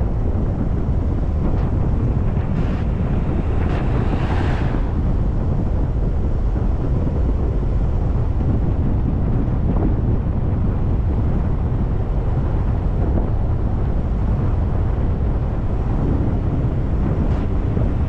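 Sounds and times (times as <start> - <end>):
car road and engine noise: 0.0 - 9.2.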